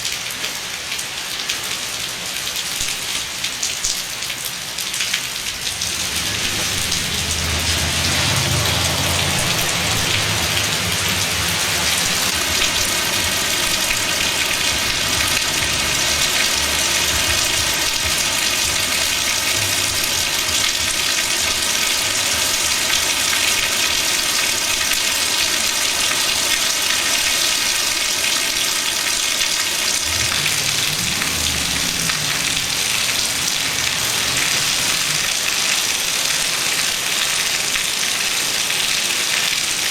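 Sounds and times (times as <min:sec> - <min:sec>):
heavy rain pouring: 0:00.0 - 0:39.9
low rumbles: 0:05.2 - 0:23.8, 0:29.5 - 0:36.1.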